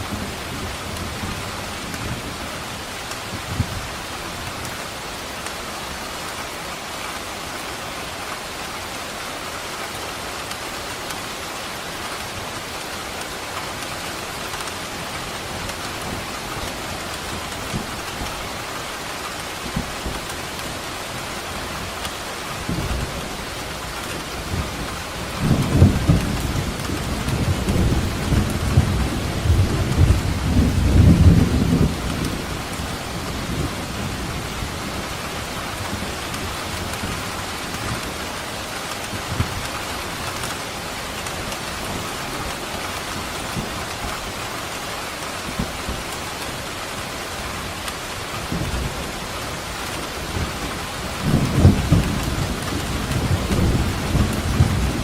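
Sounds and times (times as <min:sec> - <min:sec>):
steady rain falling: 0:00.0 - 0:55.0
thunder rolling: 0:49.9 - 0:55.0.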